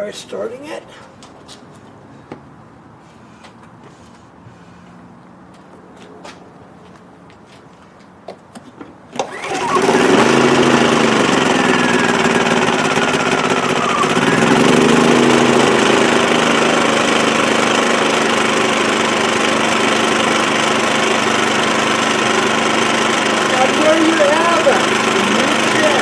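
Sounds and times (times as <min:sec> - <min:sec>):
generator engine running: 0:09.2 - 0:26.0.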